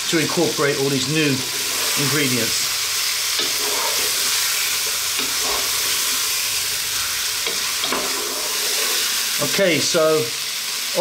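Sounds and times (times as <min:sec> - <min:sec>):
food sizzling in oil: 0:00.0 - 0:11.0
wooden spatula scraping pot: 0:03.4 - 0:06.3, 0:07.5 - 0:09.1.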